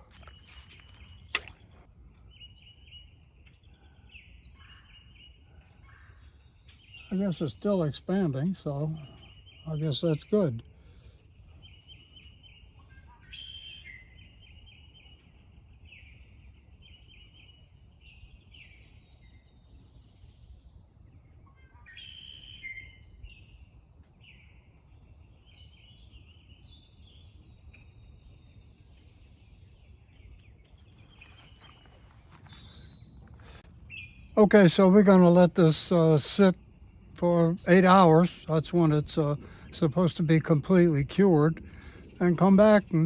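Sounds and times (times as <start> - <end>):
birds chirping and calling: 0.0 - 10.6, 30.7 - 43.0.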